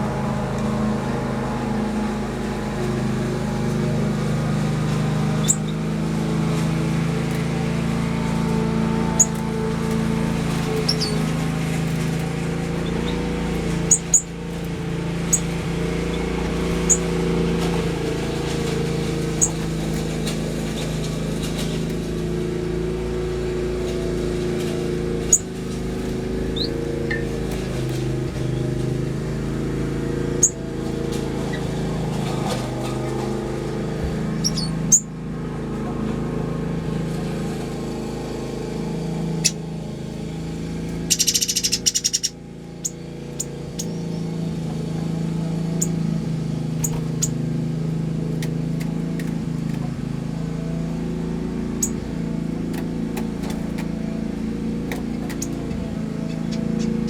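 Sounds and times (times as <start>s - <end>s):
low mechanical drone: 0.0s - 57.0s
finches chirping: 5.4s - 6.0s, 8.2s - 21.8s, 25.2s - 28.9s, 30.4s - 30.7s, 34.0s - 35.1s, 39.4s - 39.6s, 40.9s - 57.0s.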